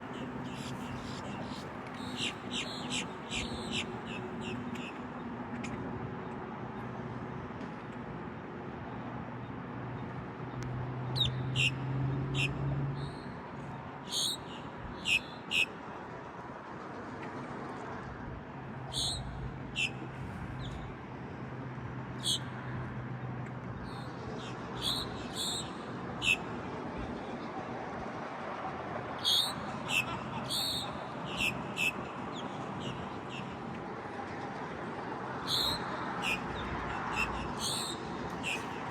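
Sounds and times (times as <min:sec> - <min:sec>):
birds calling high-pitched: 0:00.1 - 0:04.6, 0:29.2 - 0:32.0, 0:35.5 - 0:36.4, 0:37.1 - 0:38.8.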